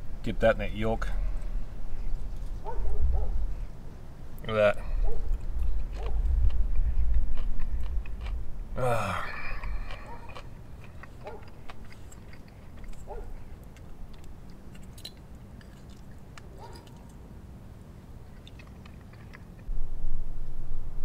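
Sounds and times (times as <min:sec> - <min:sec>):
person chewing food: 0:04.8 - 0:17.2, 0:18.2 - 0:19.7
loud low rumble: 0:19.7 - 0:21.0.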